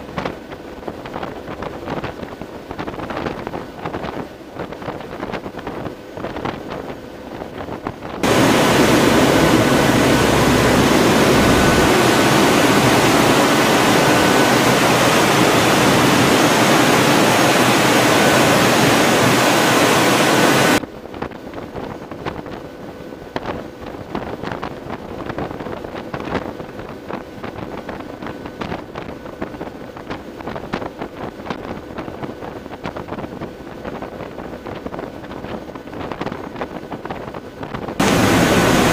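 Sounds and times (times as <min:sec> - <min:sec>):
wind buffeting microphone: 0:00.0 - 0:38.9
loud rush of wind: 0:01.3 - 0:20.8, 0:37.7 - 0:38.9.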